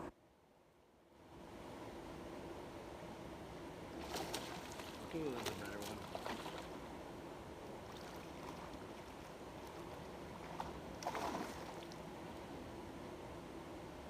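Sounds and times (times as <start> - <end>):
creek water rushing: 3.8 - 13.2.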